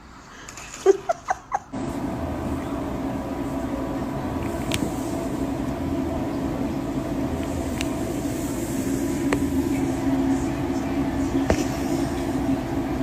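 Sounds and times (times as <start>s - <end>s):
low mechanical rumble: 1.7s - 13.0s.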